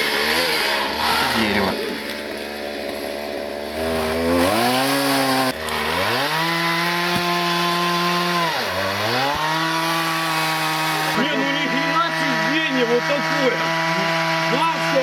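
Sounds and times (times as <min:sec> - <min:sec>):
chainsaw revving and cutting wood: 0:00.0 - 0:15.0.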